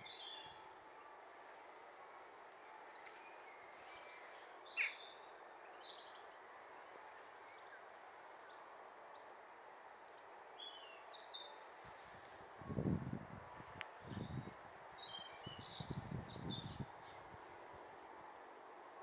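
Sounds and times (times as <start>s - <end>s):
garden ambience: 0.0s - 19.0s
small birds chirping: 1.7s - 6.4s, 13.8s - 17.2s.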